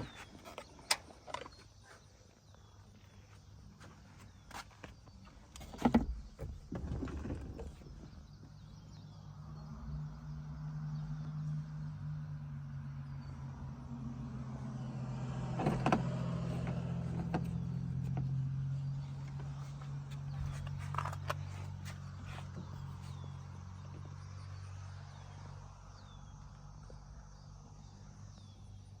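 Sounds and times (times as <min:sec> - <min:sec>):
small vehicle engine running: 0:08.6 - 0:26.5.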